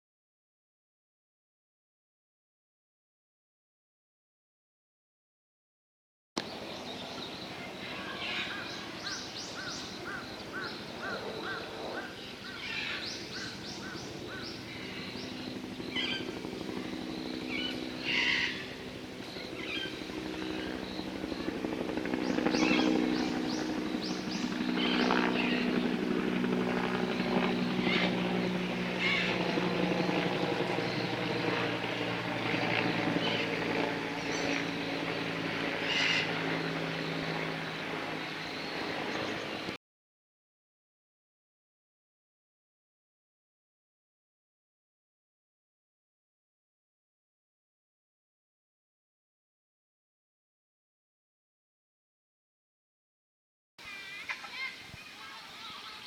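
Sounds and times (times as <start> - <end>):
birds chirping and trilling: 6.4 - 32.0, 32.7 - 39.7, 53.8 - 56.0
aircraft engine drone overhead: 6.4 - 39.8.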